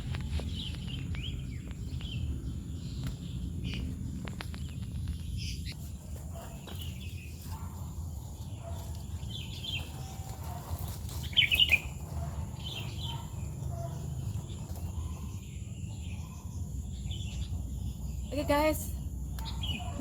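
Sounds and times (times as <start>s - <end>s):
low rumble: 0.0s - 6.1s
birds chirping: 0.0s - 20.0s.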